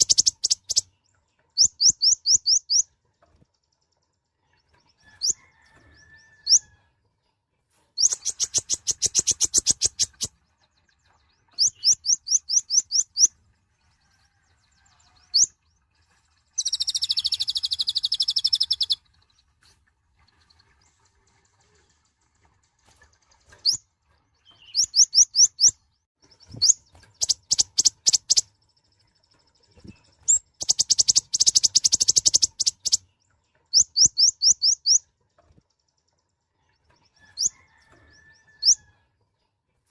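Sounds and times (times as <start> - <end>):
sunbird chirping: 0.0 - 3.0, 8.0 - 13.4, 14.2 - 19.4, 24.4 - 36.2
buzzy bird trill: 26.4 - 28.5, 29.7 - 33.1.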